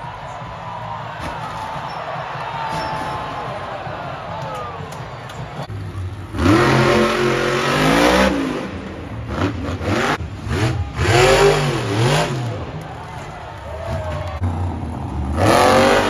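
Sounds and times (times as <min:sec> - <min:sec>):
truck engine revving hard: 0:05.6 - 0:12.8, 0:13.9 - 0:16.0.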